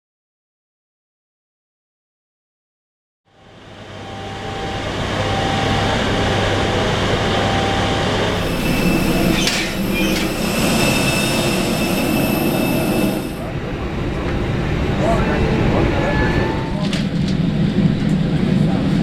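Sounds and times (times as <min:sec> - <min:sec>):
low hum: 0:03.3 - 0:18.2
high steady tones: 0:03.4 - 0:13.6
air conditioning rush: 0:03.6 - 0:19.0.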